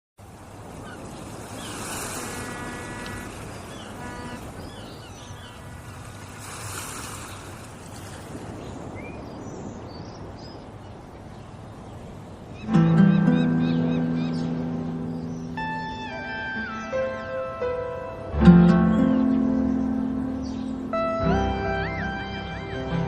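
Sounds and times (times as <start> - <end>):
surf washing ashore: 0.2 - 18.4.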